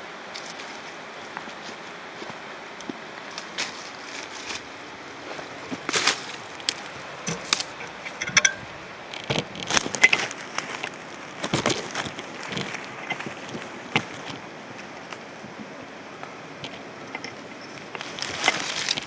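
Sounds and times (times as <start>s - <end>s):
footsteps crunching on loose ground: 0.3s - 19.0s
sharp cracks and clinks: 5.9s - 14.4s.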